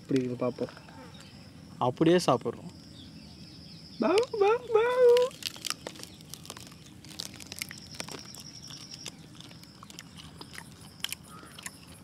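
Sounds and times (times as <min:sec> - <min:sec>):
chewing crispy food crunches: 0:04.8 - 0:12.0.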